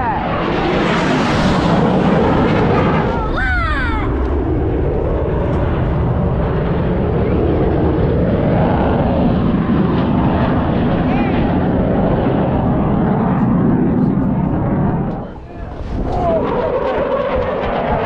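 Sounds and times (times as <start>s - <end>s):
jet aircraft flying past: 0.0s - 18.0s
person shouting: 3.1s - 4.2s.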